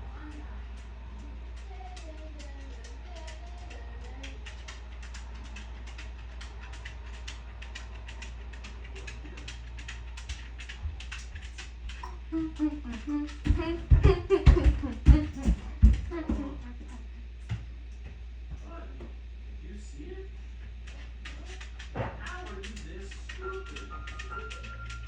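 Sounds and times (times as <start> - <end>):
steady low hum: 0.0 - 25.0
person humming: 12.3 - 17.1.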